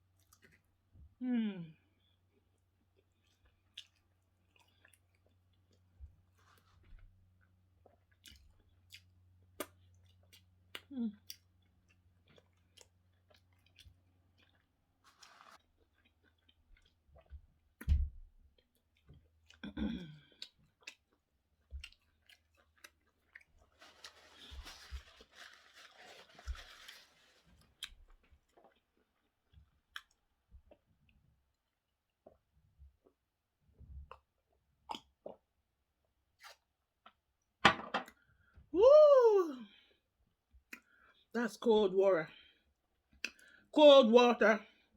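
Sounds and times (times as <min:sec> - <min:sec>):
chewing and mouth sounds: 0:02.3 - 0:14.8, 0:15.6 - 0:17.9, 0:18.5 - 0:23.8, 0:27.8 - 0:30.9, 0:33.8 - 0:35.5, 0:40.6 - 0:41.2, 0:42.9 - 0:43.7
wet mouth clicks and smacks: 0:40.7 - 0:41.0, 0:43.1 - 0:43.6.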